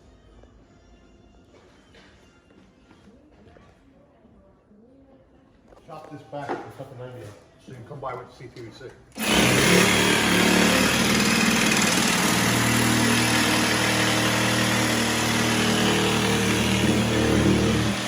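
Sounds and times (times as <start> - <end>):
power tool motor running: 9.2 - 18.0.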